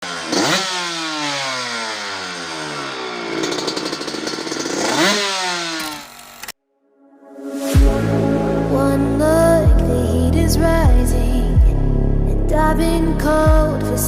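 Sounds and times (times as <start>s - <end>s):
two-stroke motocross engine revving: 0.0s - 6.6s.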